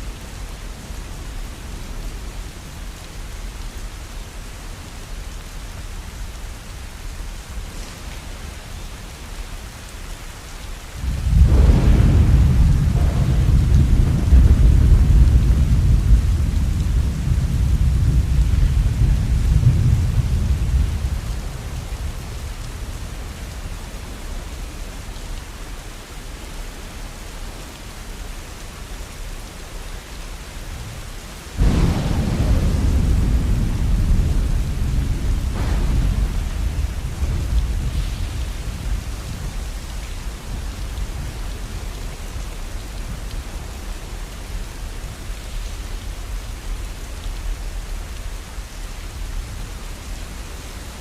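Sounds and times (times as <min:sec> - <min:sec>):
steady rain: 0:00.0 - 0:51.0
thunder rolling: 0:11.0 - 0:23.3, 0:31.6 - 0:41.9.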